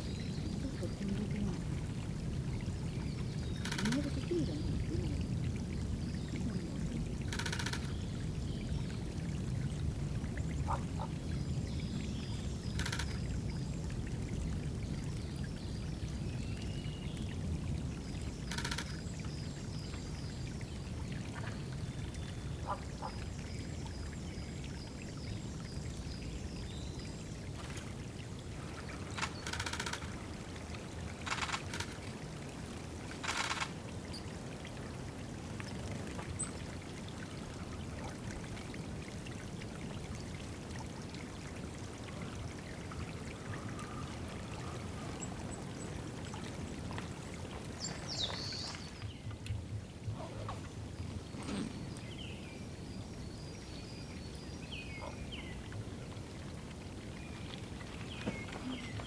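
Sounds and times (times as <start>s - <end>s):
water splashes: 0.0s - 15.0s, 27.2s - 52.2s, 55.0s - 59.0s
songbird singing: 2.5s - 9.1s, 10.6s - 13.7s, 28.6s - 30.2s, 31.1s - 32.0s, 47.8s - 49.3s, 51.2s - 52.6s
water pouring into pool: 27.3s - 47.8s.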